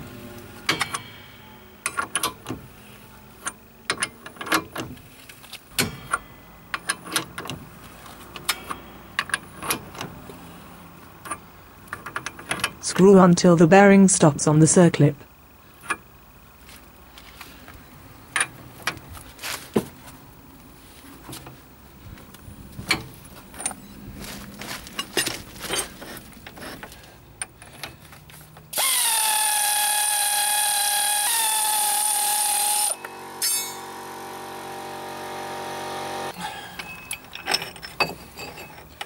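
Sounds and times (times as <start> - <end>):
tool clicks and knocks: 0.7 - 1.1
lower whine: 27.6 - 37.6
power tool whining: 28.7 - 37.0.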